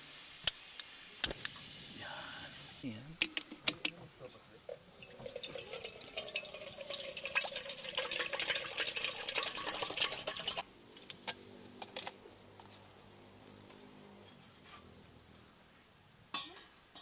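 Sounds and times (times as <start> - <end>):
water running and splashing: 4.8 - 10.6.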